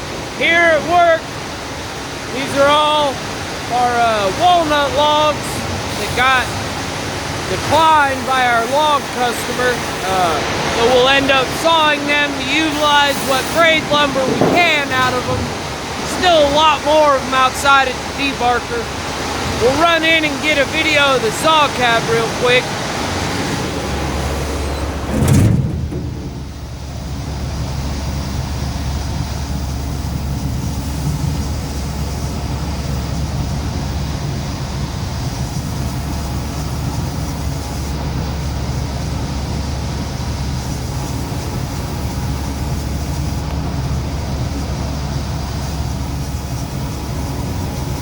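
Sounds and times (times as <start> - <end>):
sawmill machinery rumbling: 0.0 - 48.0
loud thump: 13.5 - 15.8, 25.0 - 26.8.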